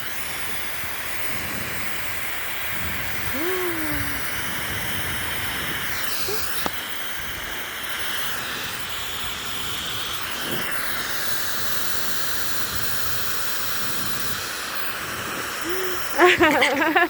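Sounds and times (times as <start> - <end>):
hair dryer blowing: 2.8 - 17.0.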